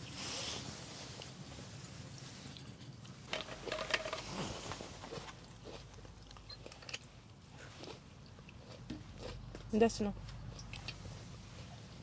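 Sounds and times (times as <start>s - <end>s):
person chewing food: 2.6s - 12.0s.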